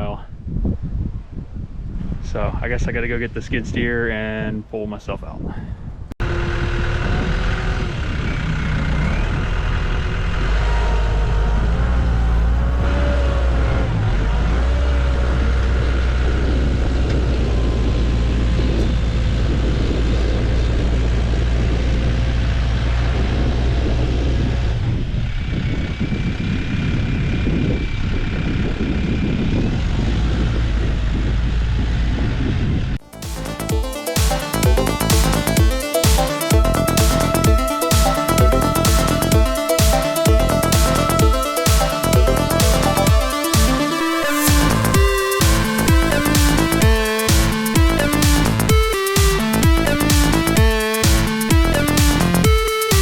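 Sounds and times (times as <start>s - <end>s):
diesel engine running: 6.2s - 53.0s.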